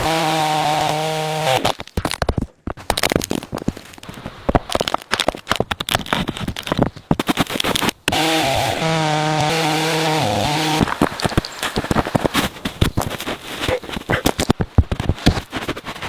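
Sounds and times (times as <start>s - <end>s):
power tool motor running: 0.0s - 1.6s, 8.1s - 12.3s
clicks and knocks of wood: 1.6s - 8.2s, 10.8s - 16.0s.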